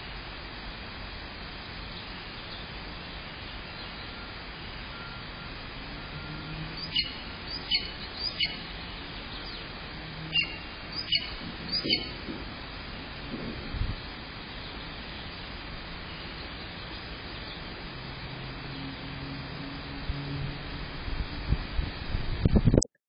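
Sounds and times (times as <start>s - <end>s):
steady background hiss: 0.0s - 22.7s
bird chirping: 6.0s - 9.7s, 10.3s - 12.4s.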